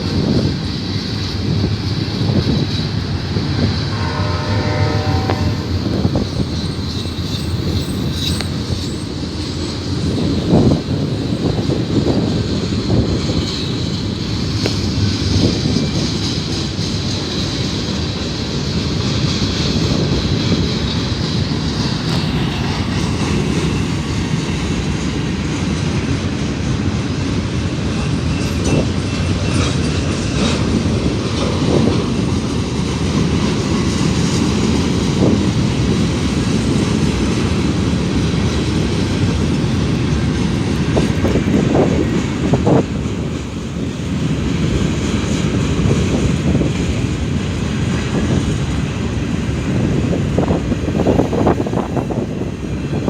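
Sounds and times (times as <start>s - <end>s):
train wheels rumbling on rail: 0.0s - 53.0s
thin high squeal: 3.6s - 10.9s, 21.4s - 24.8s.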